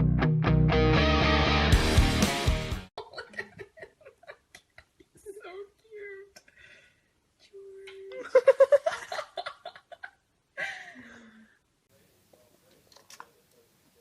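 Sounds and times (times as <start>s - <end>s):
person laughing: 3.0s - 5.6s.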